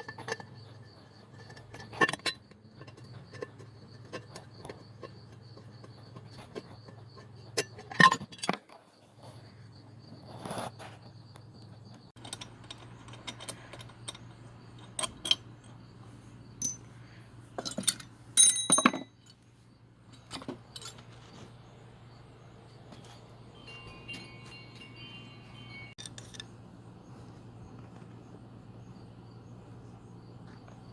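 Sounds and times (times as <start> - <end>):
metal parts clinking: 16.6 - 16.9, 17.6 - 19.1.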